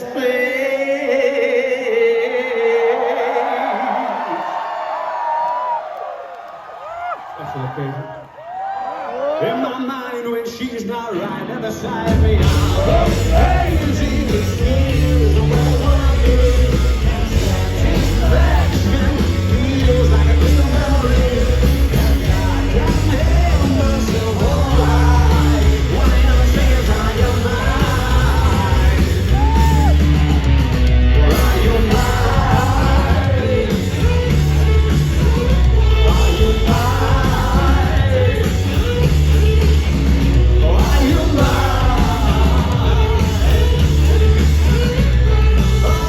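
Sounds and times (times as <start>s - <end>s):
sung vocals: 0.0s - 4.9s, 9.3s - 46.0s
rock band playing live: 11.1s - 46.0s.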